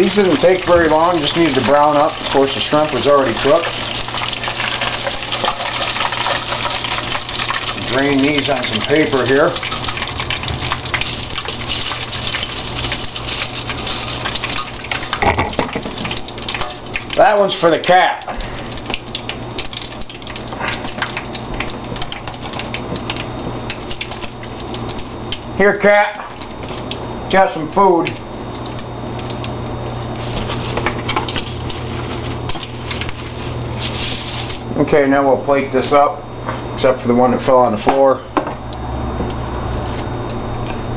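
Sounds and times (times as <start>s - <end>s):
oil sizzling in deep fryer: 0.0s - 40.7s
steady low hum: 0.0s - 40.9s.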